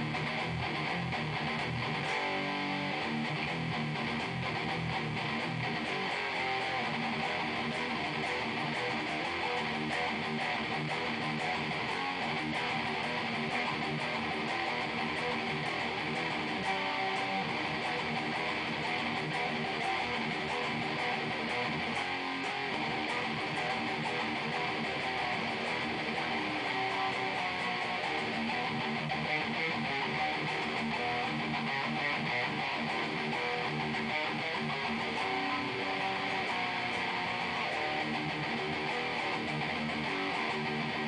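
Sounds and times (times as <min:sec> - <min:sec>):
distorted electric guitar metal riff: 0:00.0 - 0:41.0.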